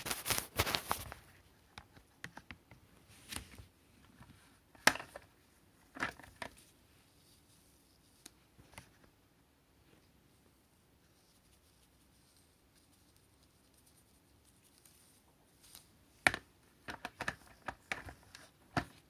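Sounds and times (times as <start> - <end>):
handling rustling: 0.0 - 1.4.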